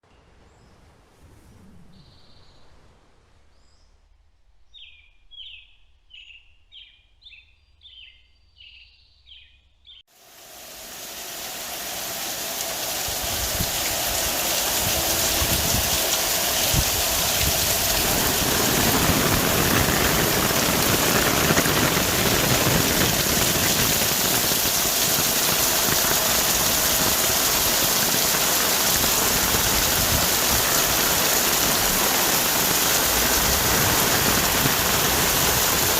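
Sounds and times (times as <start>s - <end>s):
heavy rain on trees: 10.1s - 35.9s.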